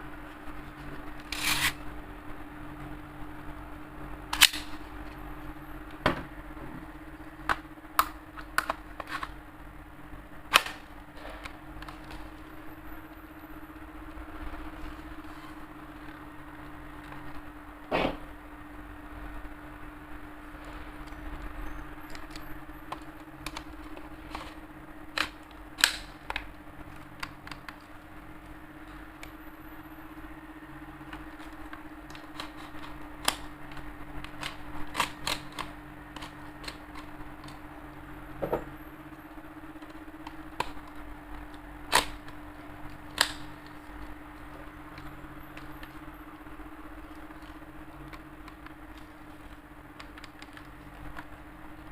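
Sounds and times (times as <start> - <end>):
steady low hum: 0.0 - 51.9
airsoft rifle cocking and firing: 4.3 - 4.8, 24.3 - 26.4, 41.9 - 42.3.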